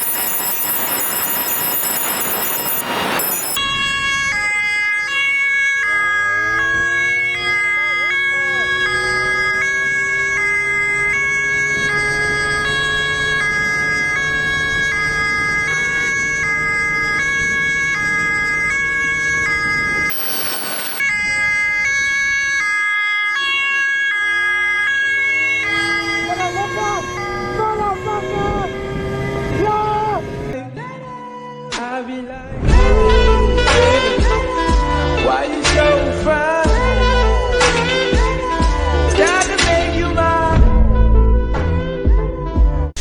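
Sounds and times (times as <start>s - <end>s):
rushing noise: 0.0s - 3.6s, 20.1s - 21.0s
two-tone siren: 0.0s - 29.1s.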